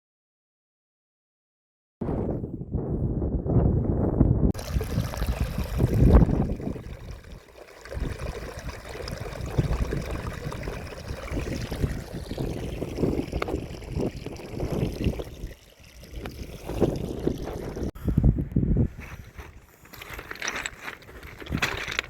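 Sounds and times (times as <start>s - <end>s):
wind buffeting microphone: 2.0s - 19.5s.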